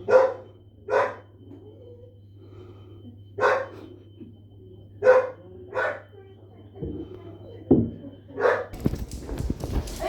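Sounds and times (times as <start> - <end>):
dog barking: 0.0 - 1.3, 3.4 - 3.8, 5.0 - 6.1, 8.4 - 8.8.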